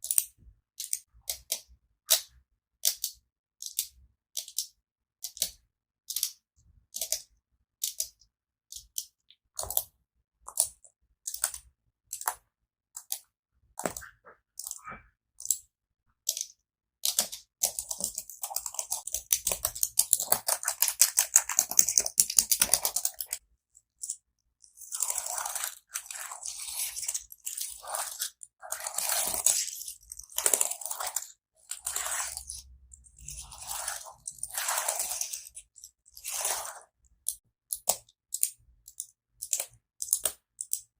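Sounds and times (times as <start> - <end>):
rapid keyboard clicking: 17.0 - 23.4
tapping on keyboard: 17.1 - 23.4
crunchy rubbing sounds: 24.8 - 36.9.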